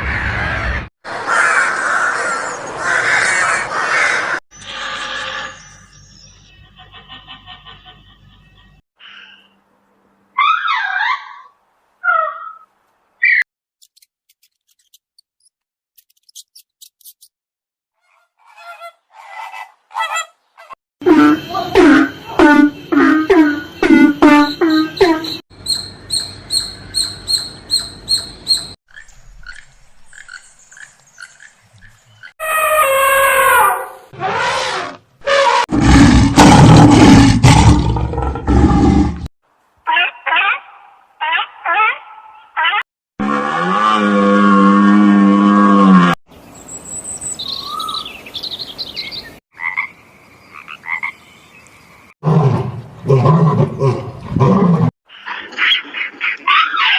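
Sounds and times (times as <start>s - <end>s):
farm fowl calling: 18.0s - 28.7s.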